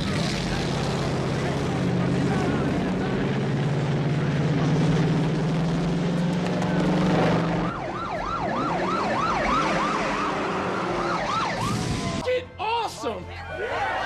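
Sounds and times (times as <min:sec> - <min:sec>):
vehicle engine droning: 0:00.0 - 0:12.2
police sirens wailing: 0:06.6 - 0:12.3.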